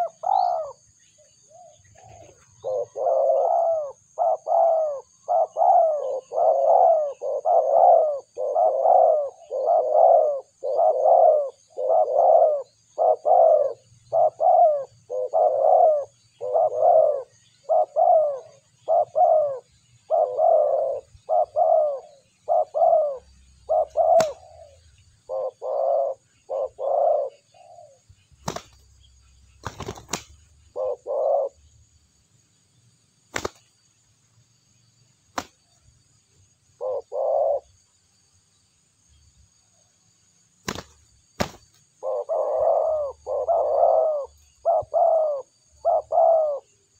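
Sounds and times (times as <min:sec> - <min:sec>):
dove cooing: 0:00.0 - 0:00.9, 0:01.5 - 0:28.7, 0:29.6 - 0:31.7, 0:36.8 - 0:37.8, 0:42.0 - 0:46.9.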